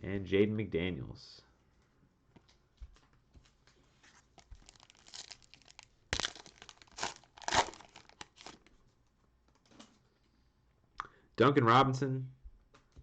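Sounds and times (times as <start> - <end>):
cellophane wrapper crinkling: 4.2 - 8.9.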